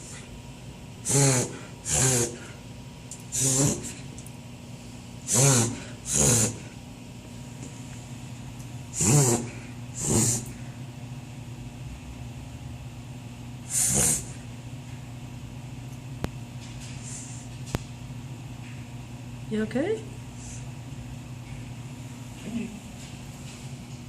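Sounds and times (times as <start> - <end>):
dog reverse sneezing: 1.0 - 2.6, 3.3 - 4.1, 5.2 - 6.8, 8.9 - 10.6, 13.7 - 14.4.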